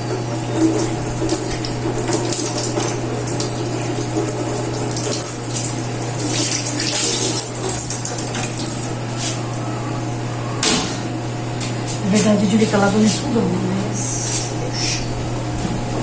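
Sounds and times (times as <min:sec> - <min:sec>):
water running from a tap: 0:00.0 - 0:09.2
steady low hum: 0:00.0 - 0:16.0.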